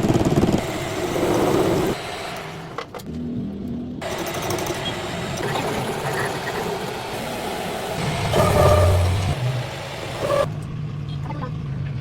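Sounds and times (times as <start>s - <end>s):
metalworking machinery running: 4.0s - 10.6s.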